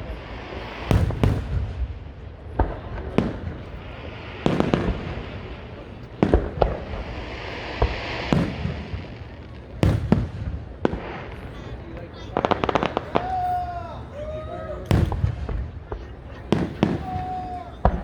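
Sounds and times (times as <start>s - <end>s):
fireworks booming: 0.0s - 18.0s
fireworks crackling and hissing: 0.0s - 18.0s.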